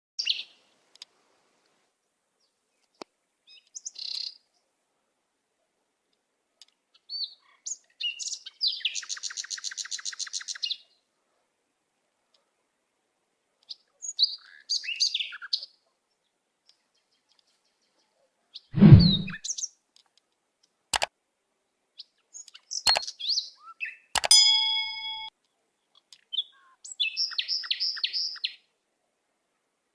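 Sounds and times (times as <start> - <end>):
heavy thump: 18.8 - 19.4
bird trill: 22.8 - 25.3.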